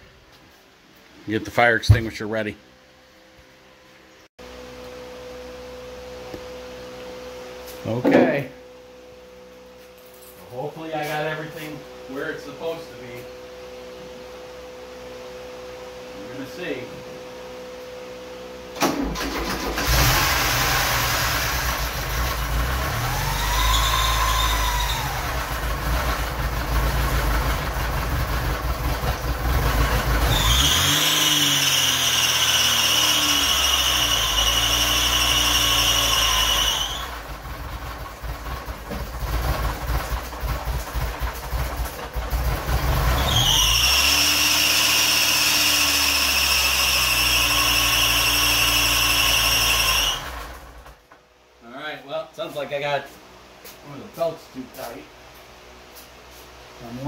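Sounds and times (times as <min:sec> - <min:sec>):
car engine starting and revving: 0:18.8 - 0:50.9
drive belt squealing: 0:22.8 - 0:25.7, 0:30.2 - 0:37.2, 0:43.0 - 0:50.6.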